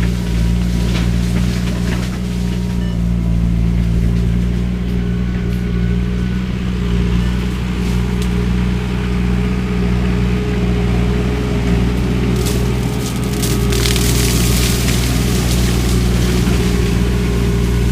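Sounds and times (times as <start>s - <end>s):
skid steer engine drone: 0.0s - 17.9s
shredder head hum: 11.7s - 17.9s.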